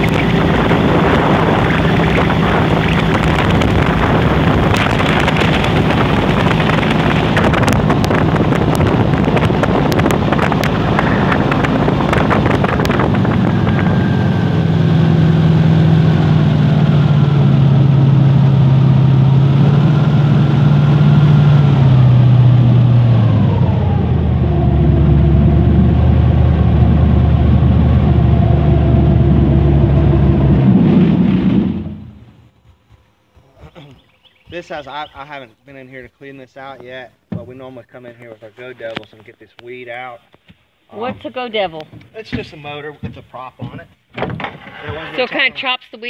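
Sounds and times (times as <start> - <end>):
rushing wind and water: 0.0 - 16.7
airboat engine and propeller: 0.0 - 32.6.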